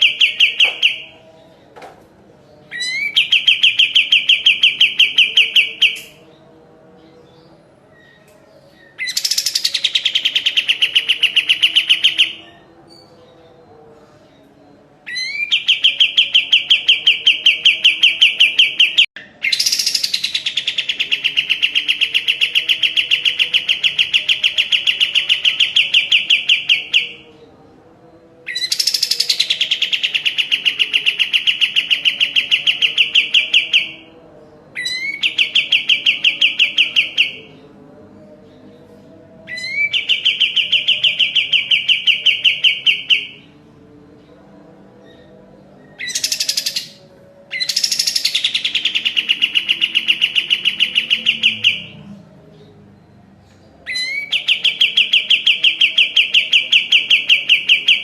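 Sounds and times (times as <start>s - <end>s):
songbird singing rapid high notes: 0.0s - 1.2s, 2.7s - 6.3s, 8.8s - 12.6s, 15.1s - 27.3s, 28.5s - 34.1s, 39.5s - 43.5s, 46.0s - 52.0s, 53.8s - 58.0s.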